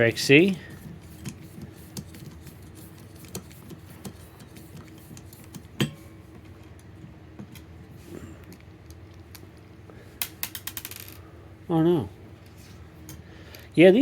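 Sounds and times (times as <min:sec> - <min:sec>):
small metal parts clicking: 0:10.2 - 0:11.2.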